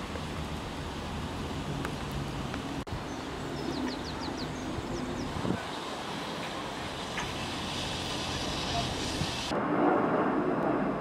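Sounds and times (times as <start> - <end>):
small bird chirping: 3.0 - 5.4.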